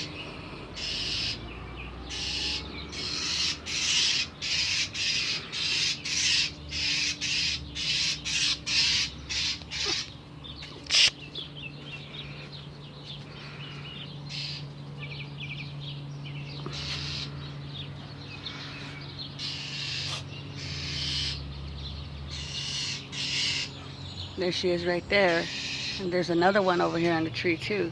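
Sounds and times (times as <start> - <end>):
bird harsh alarm calls: 0.0 - 27.9
steady low hum: 0.0 - 27.9
soft bird chirps: 7.5 - 27.2.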